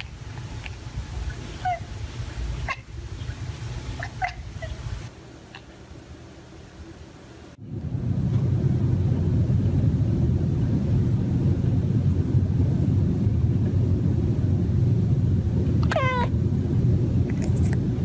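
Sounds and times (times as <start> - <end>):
steady low rumble: 0.0 - 5.6, 6.4 - 18.0
cat chirping: 1.3 - 2.0, 2.6 - 5.1, 15.8 - 16.3.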